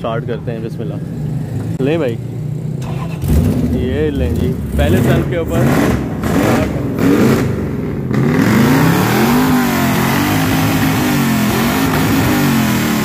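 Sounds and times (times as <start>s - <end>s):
engine revving: 2.8s - 13.0s.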